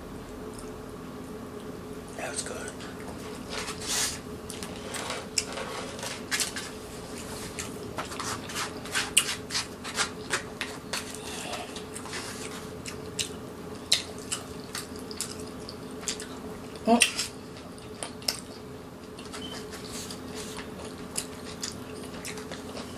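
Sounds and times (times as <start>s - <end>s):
faint steady hum: 0.0s - 22.9s
wet chewing mouth noises: 11.0s - 22.9s.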